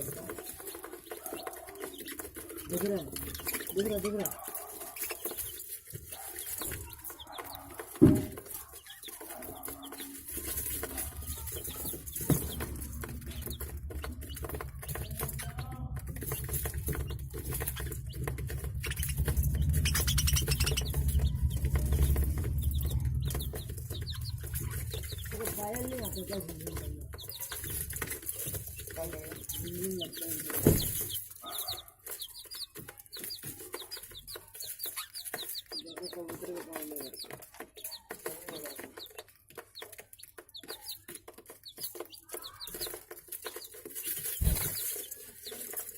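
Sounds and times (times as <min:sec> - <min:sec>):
budgerigars chirping and chattering: 0:00.0 - 0:45.9
lower bird calls: 0:18.8 - 0:25.3.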